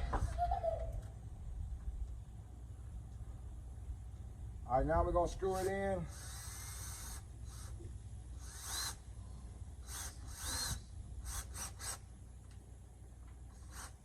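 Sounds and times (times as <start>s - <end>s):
cordless drill driving a screw: 5.5s - 7.8s, 8.4s - 9.0s, 9.8s - 12.0s, 13.5s - 14.0s.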